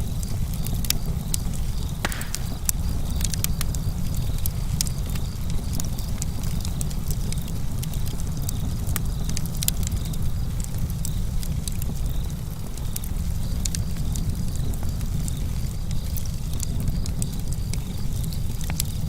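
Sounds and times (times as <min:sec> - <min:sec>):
low rumble of fire: 0:00.0 - 0:19.0
wood snapping and popping: 0:00.9 - 0:05.0.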